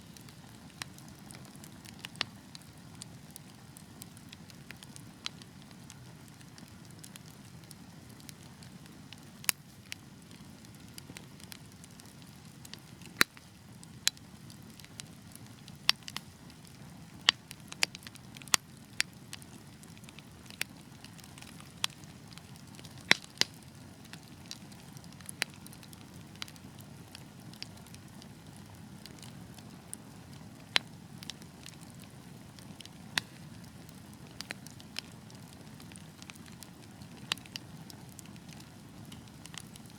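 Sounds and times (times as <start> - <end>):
wood fire burning: 0.0 - 39.9.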